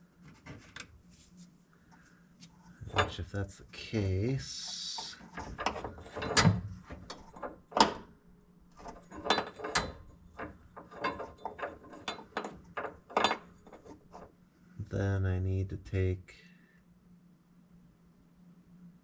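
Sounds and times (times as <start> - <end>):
metallic clicks and clanks of tools: 2.8 - 3.3, 4.5 - 8.1, 8.8 - 14.3.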